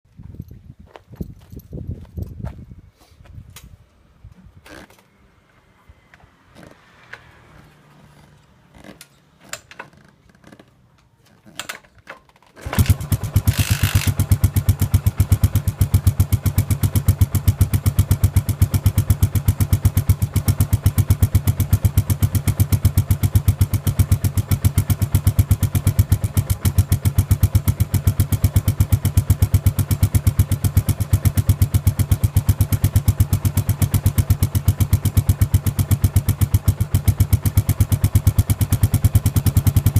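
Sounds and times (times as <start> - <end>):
motorcycle engine idling: 12.7 - 39.9.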